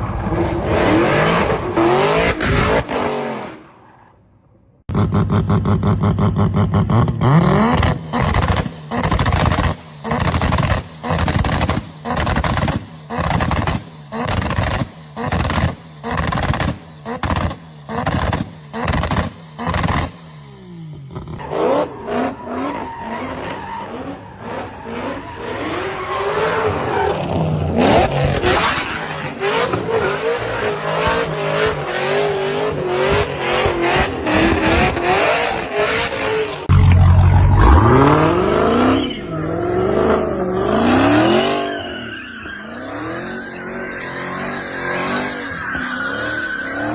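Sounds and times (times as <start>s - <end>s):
car engine revving: 0.0s - 3.8s, 4.9s - 46.9s
tire squeal: 21.4s - 36.6s, 37.6s - 39.6s, 40.4s - 46.9s.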